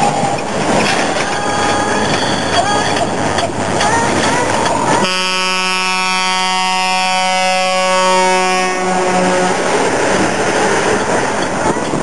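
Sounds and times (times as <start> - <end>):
truck air horn blast: 5.0 - 9.8.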